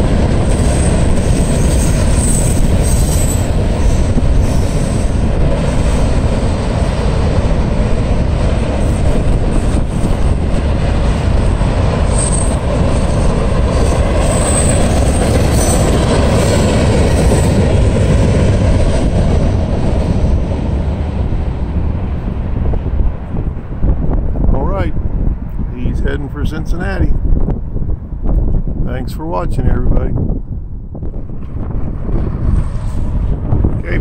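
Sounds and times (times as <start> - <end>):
freight train rumbling past: 0.0 - 34.0
high wheel squeals: 0.5 - 5.2, 12.1 - 17.6.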